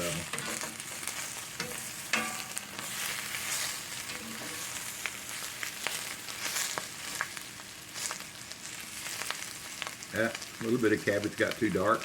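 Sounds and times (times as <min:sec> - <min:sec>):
food sizzling in a skillet: 0:00.0 - 0:12.0
utensil scraping and tapping pan: 0:00.2 - 0:01.0, 0:01.6 - 0:03.1.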